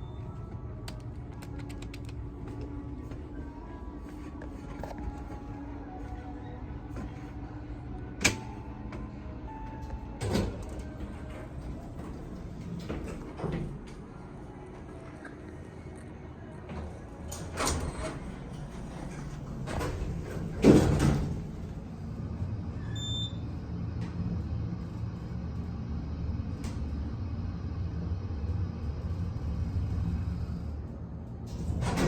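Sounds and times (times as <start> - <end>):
elevator doors sliding shut: 8.1 - 15.1, 16.6 - 23.4, 31.5 - 32.0.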